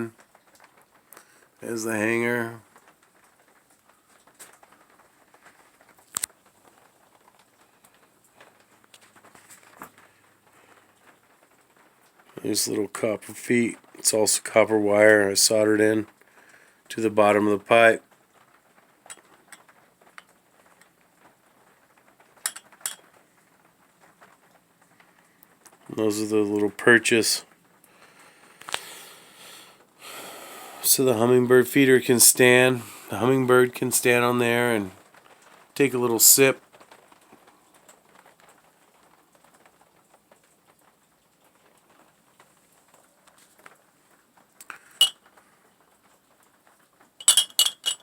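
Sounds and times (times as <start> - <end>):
faint steady hiss: 0.0 - 48.0
glass bottles clinking: 22.5 - 23.1, 47.2 - 48.0.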